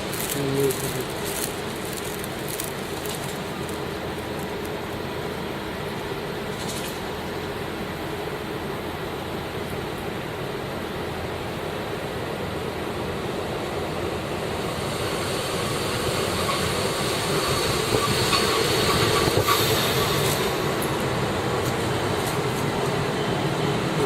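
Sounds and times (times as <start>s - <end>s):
wheels clicking over rail joints: 0.0s - 5.1s
train running on rails: 0.0s - 24.0s.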